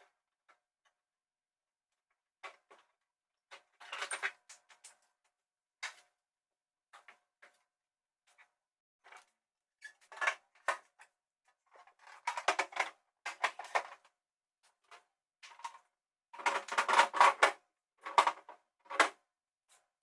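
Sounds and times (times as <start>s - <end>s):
items clicking and clattering: 3.5s - 5.1s, 11.7s - 14.1s, 14.9s - 19.2s.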